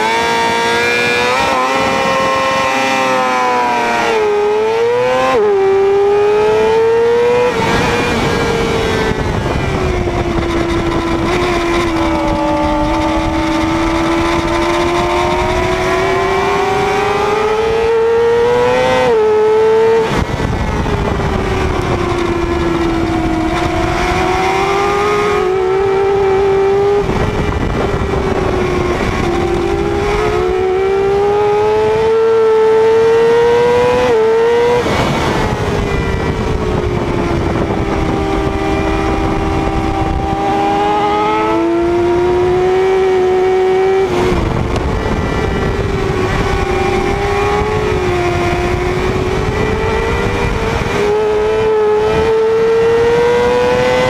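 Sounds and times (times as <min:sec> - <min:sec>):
heavy wind rush: 0:00.0 - 0:54.0
motorcycle engine revving: 0:00.0 - 0:54.0.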